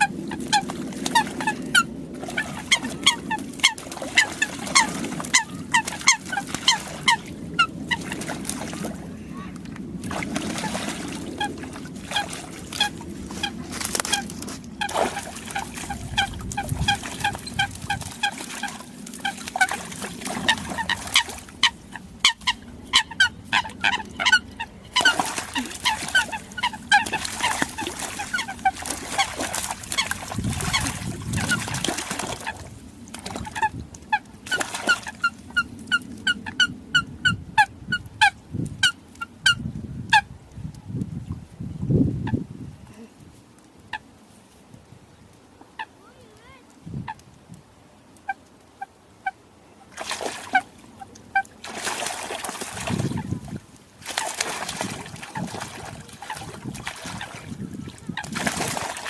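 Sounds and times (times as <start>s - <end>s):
coots honking calls: 11.3s - 29.3s.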